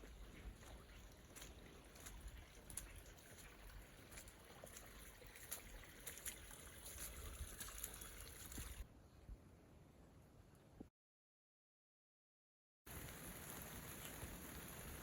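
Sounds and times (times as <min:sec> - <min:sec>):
faint trickling water: 0:00.0 - 0:08.9
light water drips: 0:00.0 - 0:08.9, 0:12.9 - 0:15.0.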